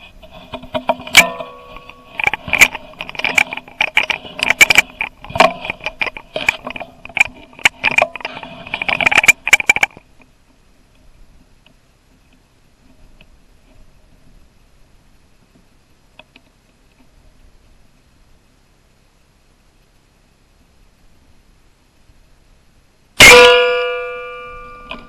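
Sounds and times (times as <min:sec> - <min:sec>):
rifle handling clicks and rattles: 0:00.3 - 0:10.3
metallic knock with ring: 0:01.1 - 0:02.1, 0:23.2 - 0:25.0.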